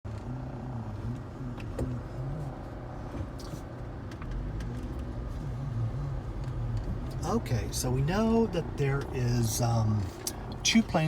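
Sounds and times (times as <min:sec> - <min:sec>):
low engine drone: 0:00.1 - 0:11.0.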